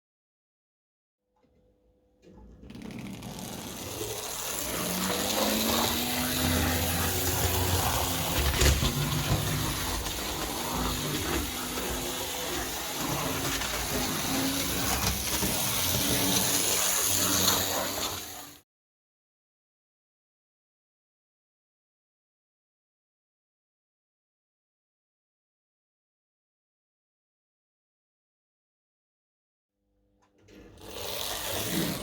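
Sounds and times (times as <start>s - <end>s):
low motor hum: 2.4s - 16.5s
model train wheels rattling on rail: 2.7s - 18.6s, 30.5s - 32.0s.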